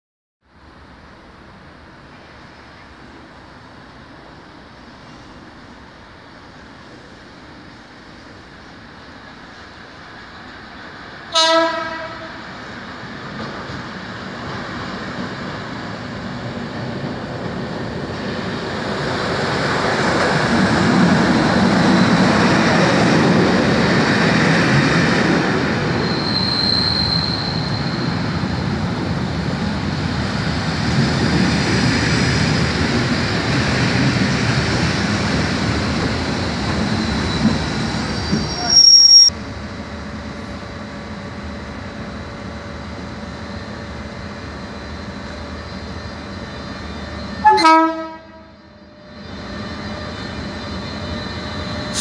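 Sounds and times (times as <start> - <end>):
train wheels rumbling over track: 0.5 - 52.0
shrill train brake squeal: 25.8 - 28.7, 36.5 - 39.4, 43.4 - 52.0.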